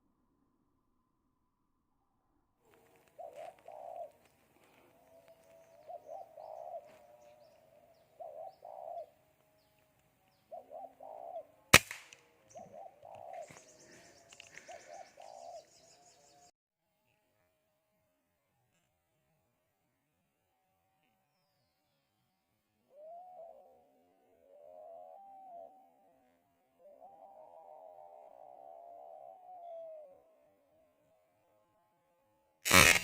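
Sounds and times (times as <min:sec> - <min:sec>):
doves cooing: 0:02.7 - 0:16.5, 0:22.9 - 0:30.6
air rifle shot: 0:11.8 - 0:12.2, 0:32.7 - 0:33.0.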